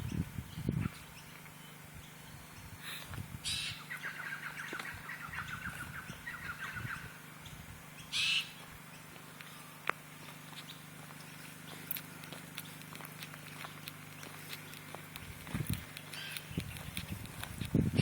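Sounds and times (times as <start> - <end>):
birds calling: 0.0 - 18.0
bird chattering: 3.4 - 7.1, 8.0 - 9.1, 16.0 - 17.0.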